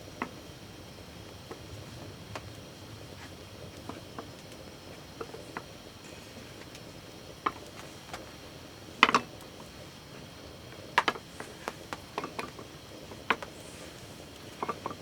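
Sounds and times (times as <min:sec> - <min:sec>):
steady faint hiss: 0:00.0 - 0:15.0
camp cookware clinking: 0:03.6 - 0:15.0.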